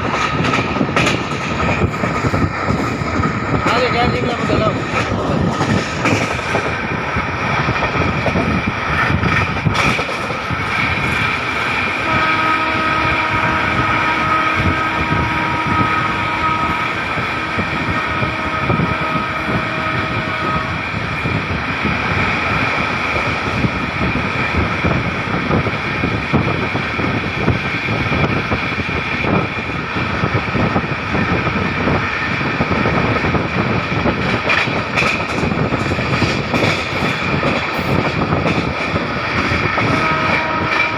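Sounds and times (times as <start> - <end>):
train wheels rumbling on track: 0.0 - 40.9
train horn blasts: 12.0 - 20.8, 39.8 - 40.9.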